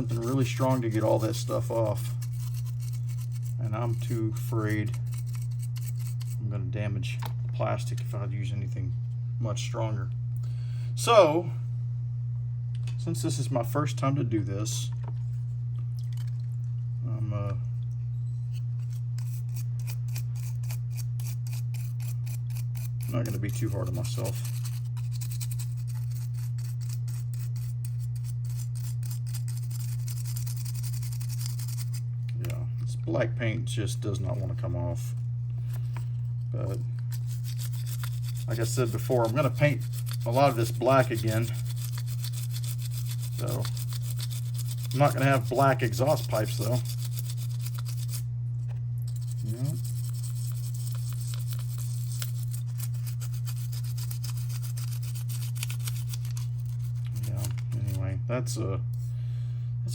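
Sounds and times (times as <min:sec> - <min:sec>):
small brush scrubbing plastic: 0:00.0 - 0:06.4, 0:18.5 - 0:32.6, 0:34.0 - 0:48.3, 0:49.1 - 0:58.2
steady low hum: 0:00.0 - 0:59.9.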